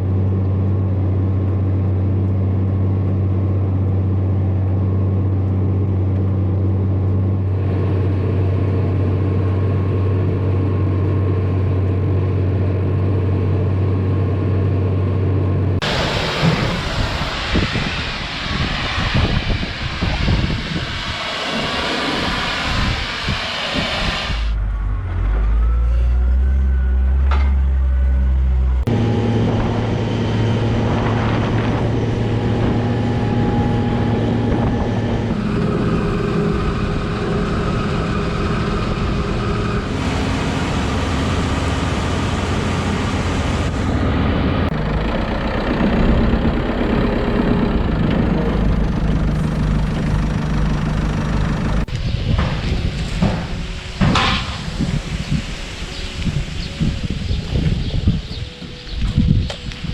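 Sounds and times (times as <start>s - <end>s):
harvester engine humming: 0.0s - 59.9s
rushing wind-like noise: 15.8s - 24.7s, 28.8s - 44.8s, 48.8s - 59.9s.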